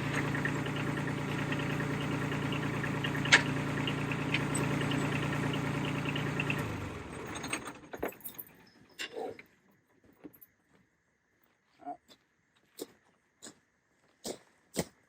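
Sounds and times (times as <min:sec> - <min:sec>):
tractor engine running: 0:00.0 - 0:08.5.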